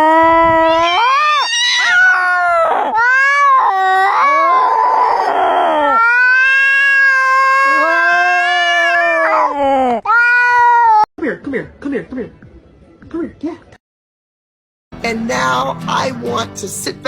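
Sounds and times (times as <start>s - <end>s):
cat yowling: 0.0s - 11.1s.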